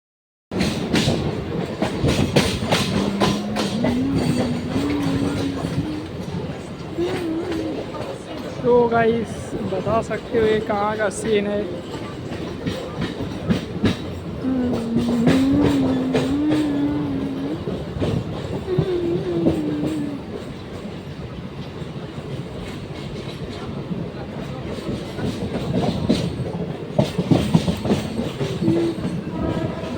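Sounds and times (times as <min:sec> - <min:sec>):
train wheels clacking over rail joints: 0:00.5 - 0:29.9
held droning tone: 0:02.6 - 0:08.1.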